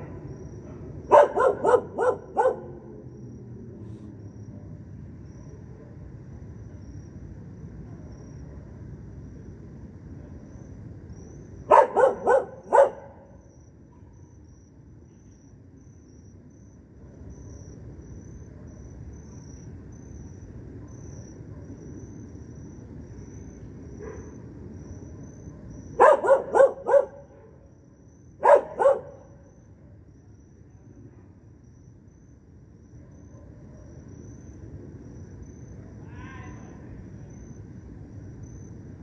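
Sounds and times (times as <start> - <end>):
crickets chirring: 0.0 - 39.0
dog barking: 0.1 - 2.8, 11.7 - 13.4, 24.0 - 24.4, 25.4 - 27.6, 28.4 - 29.4, 33.1 - 34.0.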